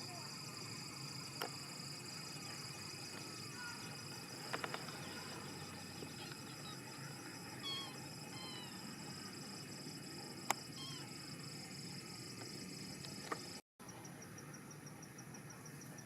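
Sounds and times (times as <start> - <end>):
steady background hiss: 0.0 - 16.0
small clicks: 4.4 - 5.0
kittens mewing faintly: 7.6 - 8.8.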